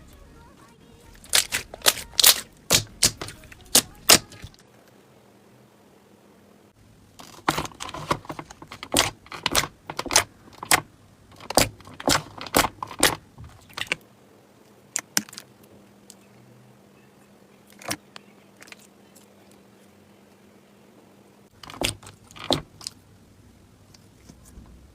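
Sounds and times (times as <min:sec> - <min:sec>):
slime crackling pops: 0:01.2 - 0:04.5.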